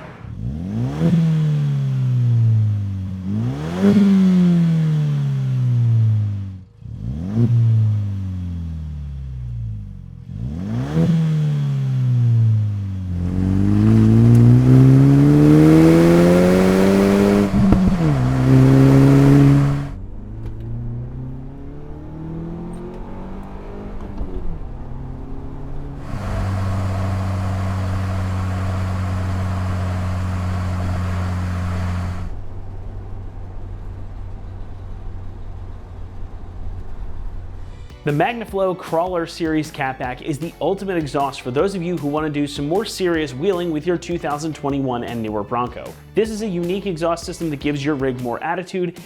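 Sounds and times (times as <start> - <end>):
engine revving through exhaust: 0.0 - 37.7.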